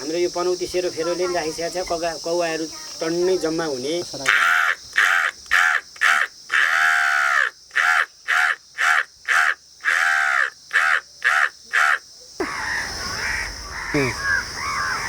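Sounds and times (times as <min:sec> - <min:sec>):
man imitating crow caws: 0:04.3 - 0:12.7, 0:13.9 - 0:14.4.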